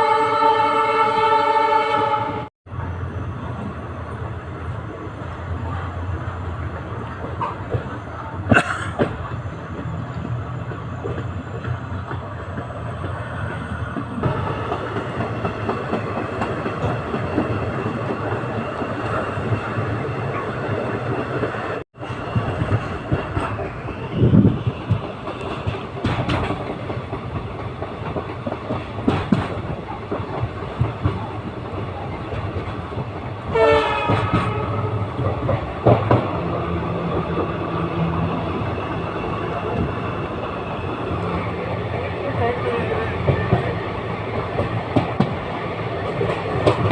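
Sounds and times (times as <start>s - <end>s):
train horn blast: 0.0s - 2.5s, 33.5s - 35.2s
train wheels clickety-clack: 6.6s - 46.9s.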